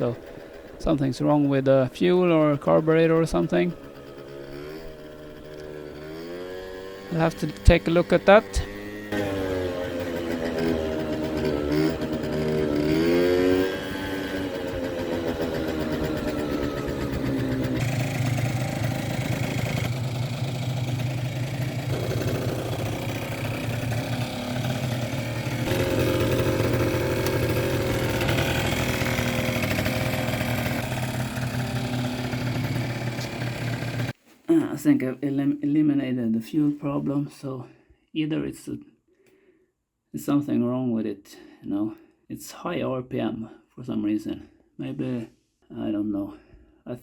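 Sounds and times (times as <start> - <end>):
scooter engine revving: 0.0 - 1.0, 2.3 - 34.2.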